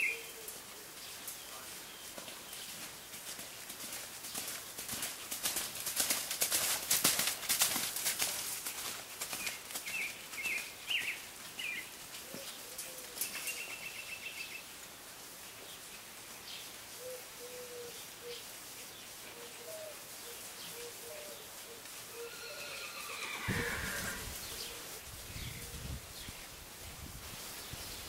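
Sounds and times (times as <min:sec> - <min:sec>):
birds chirping in trees: 0:00.0 - 0:05.3, 0:09.1 - 0:26.7, 0:27.4 - 0:28.0
horse hoofbeats on sand: 0:01.6 - 0:12.6.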